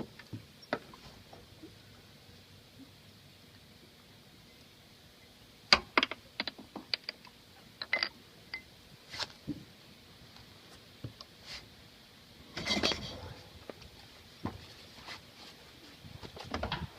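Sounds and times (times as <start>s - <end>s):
sharp clicks and knocks: 5.7s - 8.2s.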